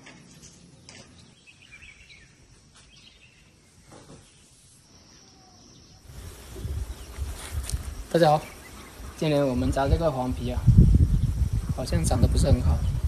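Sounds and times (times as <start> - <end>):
bird chirps: 0.4 - 7.6, 8.2 - 9.3.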